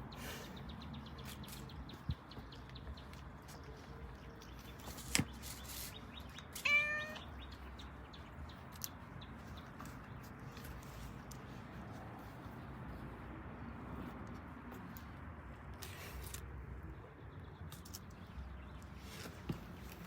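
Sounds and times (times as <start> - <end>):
cat meowing: 6.6 - 7.3.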